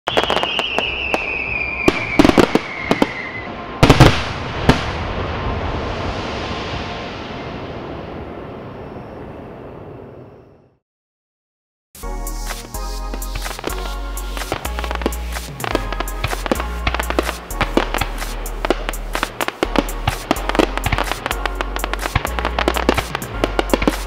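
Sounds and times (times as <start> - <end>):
firework bangs: 0.1 - 7.0, 13.1 - 24.0
firework whistle: 0.1 - 9.5, 12.0 - 24.0
firework crackling hiss: 12.0 - 24.0.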